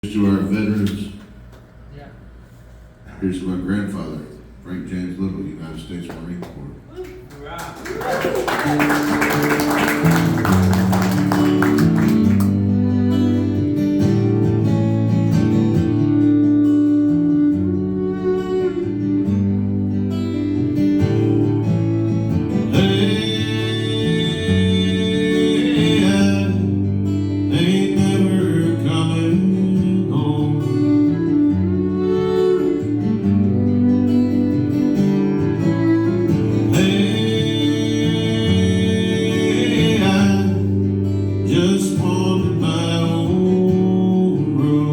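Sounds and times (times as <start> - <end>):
acoustic guitar chords: 8.6 - 44.9
person singing: 22.7 - 26.7, 27.5 - 31.3, 36.6 - 40.8, 41.5 - 44.9.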